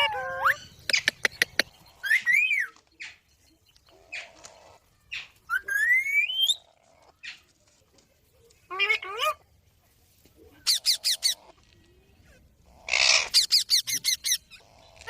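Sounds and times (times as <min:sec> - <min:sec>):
parrot clicks and chirps: 0:00.8 - 0:01.8.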